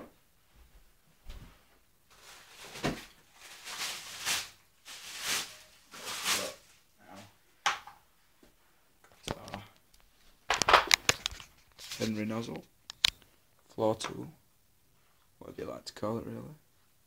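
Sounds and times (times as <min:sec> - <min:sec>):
packaging rustling: 0:02.1 - 0:06.7, 0:10.5 - 0:12.2.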